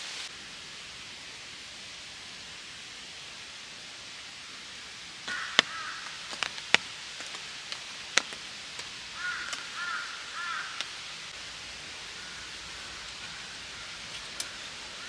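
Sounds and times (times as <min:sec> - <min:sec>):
rain hiss: 0:00.0 - 0:15.0
bird calling: 0:05.3 - 0:06.8, 0:09.1 - 0:10.9, 0:12.1 - 0:15.0.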